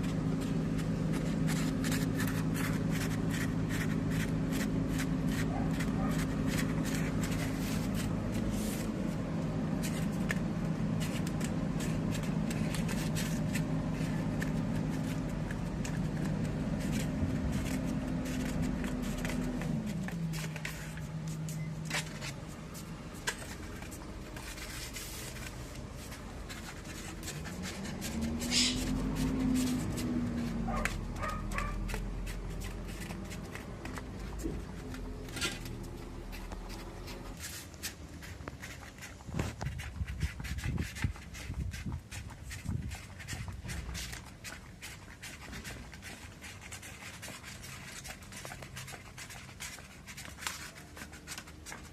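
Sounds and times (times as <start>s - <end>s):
low motor hum: 0.0s - 37.4s.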